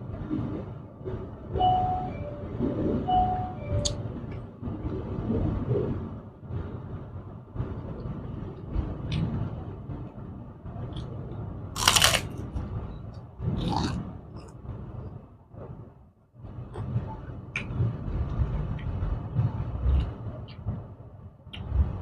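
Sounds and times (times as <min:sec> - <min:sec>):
low steady rumble: 0:00.0 - 0:22.0
person chewing food: 0:11.8 - 0:12.3
sharp crunch: 0:11.8 - 0:12.3.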